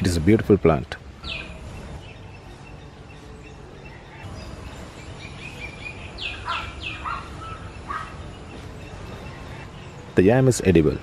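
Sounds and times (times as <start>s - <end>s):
wild birds chirping: 0.0s - 11.0s
bird calls sweeping downward: 1.2s - 9.9s.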